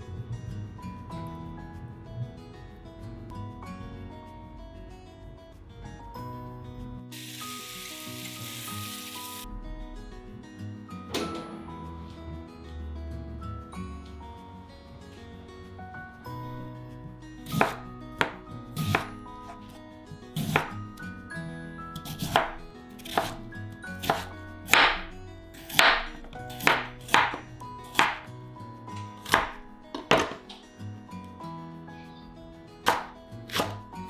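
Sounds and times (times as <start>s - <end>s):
soft background music: 0.0s - 34.0s
knife chopping on cutting board: 17.5s - 19.7s, 20.4s - 20.8s, 22.0s - 23.4s, 24.0s - 25.1s, 25.7s - 28.3s, 29.2s - 30.6s, 32.9s - 33.8s.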